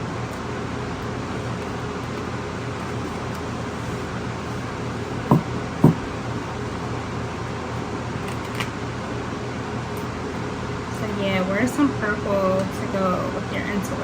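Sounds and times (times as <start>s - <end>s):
room hum: 0.0s - 14.0s
short knocks: 5.3s - 6.0s.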